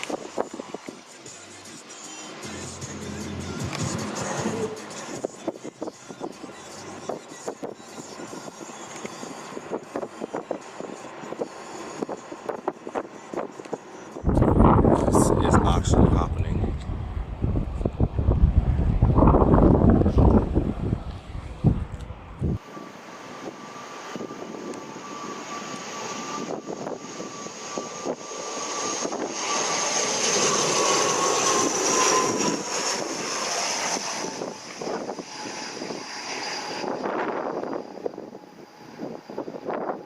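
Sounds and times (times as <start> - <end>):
airliner engines whining: 0.0 - 40.0
wind buffeting microphone: 14.2 - 22.7, 30.5 - 40.0.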